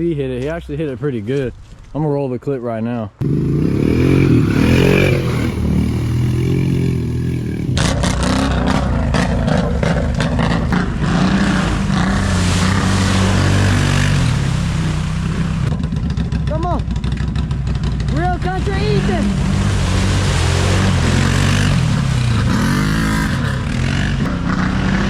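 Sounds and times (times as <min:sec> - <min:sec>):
atv engine revving: 0:03.2 - 0:25.0
mud slapping and spattering: 0:03.3 - 0:15.8, 0:18.0 - 0:24.4.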